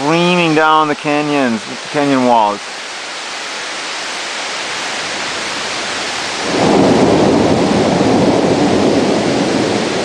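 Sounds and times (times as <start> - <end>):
heavy rain: 0.0 - 10.0
waterfalls streaming: 0.0 - 10.0
rough rumbling noise: 6.2 - 10.0.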